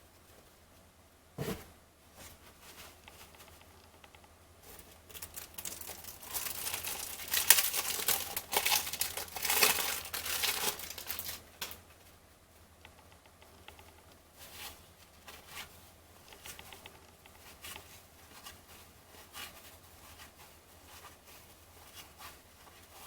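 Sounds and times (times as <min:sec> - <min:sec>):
cellophane wrapper tearing and crinkling: 0:05.1 - 0:11.8.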